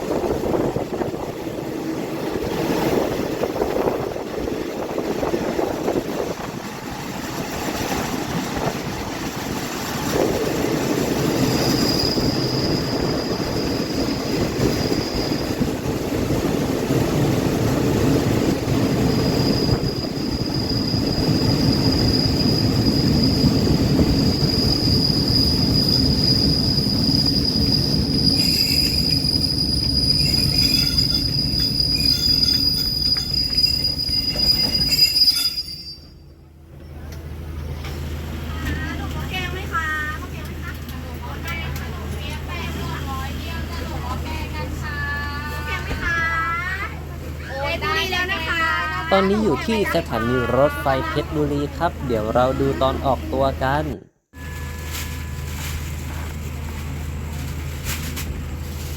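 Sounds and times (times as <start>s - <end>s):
train rumbling on rails: 0.0s - 58.9s
high-pitched wheel squeal: 11.4s - 15.7s, 19.0s - 36.3s.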